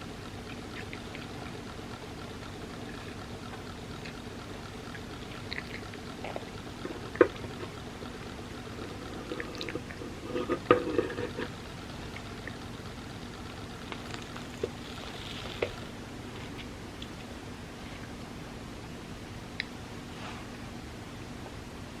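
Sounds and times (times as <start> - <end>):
small clicks: 0.0 - 15.9
steady low hum: 0.0 - 22.0
moist mouth sounds: 0.4 - 15.9.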